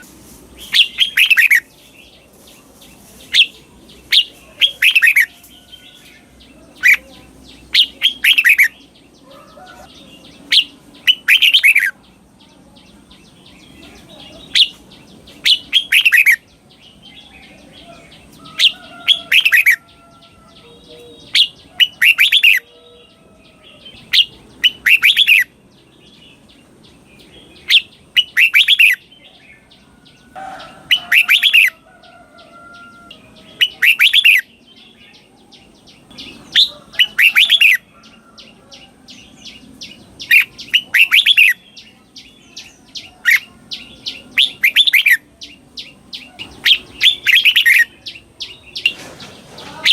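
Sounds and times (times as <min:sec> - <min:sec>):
bird whistled song: 0:00.6 - 0:02.0, 0:03.3 - 0:09.0, 0:10.2 - 0:12.0, 0:14.5 - 0:20.0, 0:20.7 - 0:22.8, 0:24.0 - 0:26.2, 0:27.5 - 0:29.2, 0:30.9 - 0:31.8, 0:33.5 - 0:35.3, 0:36.0 - 0:38.2, 0:39.5 - 0:49.0.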